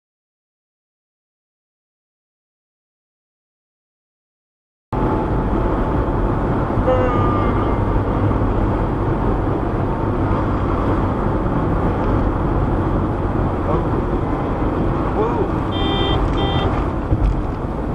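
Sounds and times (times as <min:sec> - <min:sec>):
car road and engine noise: 0:04.9 - 0:17.9.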